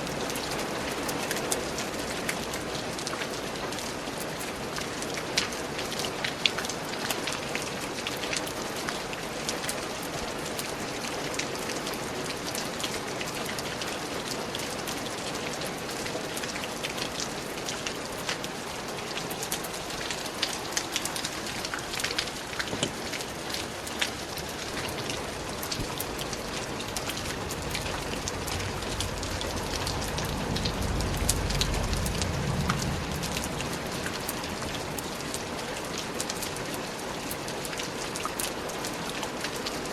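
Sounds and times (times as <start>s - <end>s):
rain falling in forest: 0.0s - 39.9s
low rumble: 25.4s - 35.1s.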